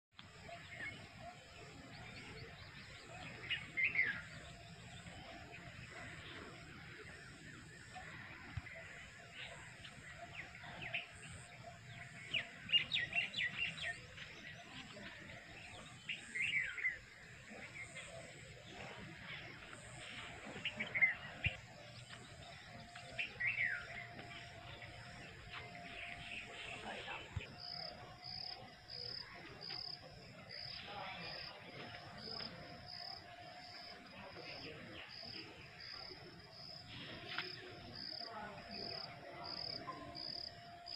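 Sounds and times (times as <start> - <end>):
birds chirping: 0.2 - 40.9.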